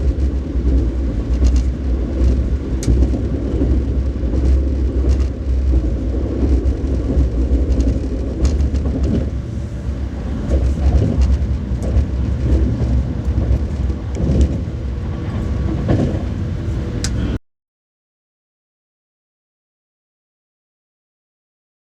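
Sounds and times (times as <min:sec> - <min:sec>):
train low rumble: 0:00.0 - 0:17.4.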